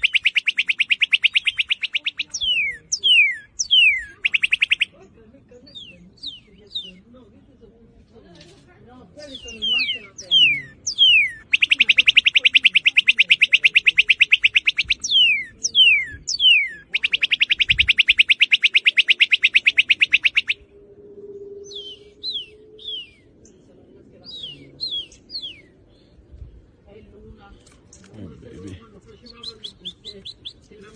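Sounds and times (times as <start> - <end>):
bird whistles slurring downward: 0.0 - 4.9, 9.4 - 23.3
fast bird trills: 0.0 - 5.0, 9.3 - 20.7.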